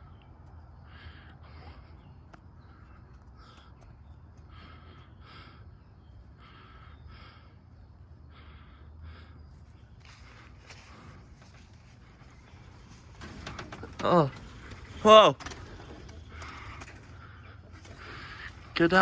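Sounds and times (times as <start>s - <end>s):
chickens giving harsh calls: 12.2s - 19.0s.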